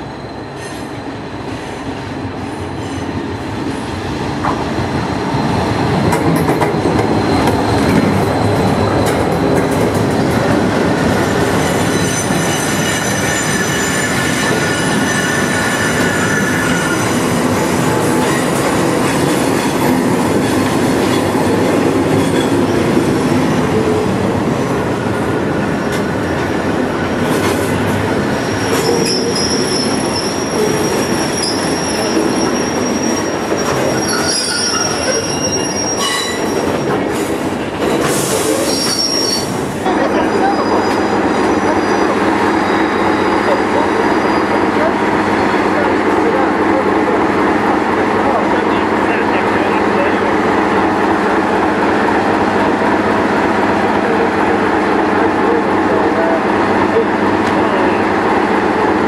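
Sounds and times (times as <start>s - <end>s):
train wheels rumbling on rails: 0.0s - 59.0s
wheel squeal: 11.5s - 17.3s, 28.4s - 36.9s, 38.2s - 39.6s.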